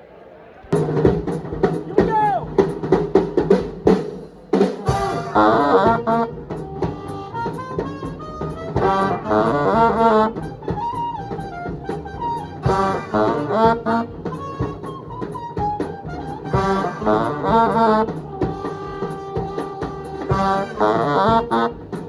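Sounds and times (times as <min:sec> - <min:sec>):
swing jazz band: 0:00.8 - 0:22.0
horn section riffing: 0:04.6 - 0:22.0.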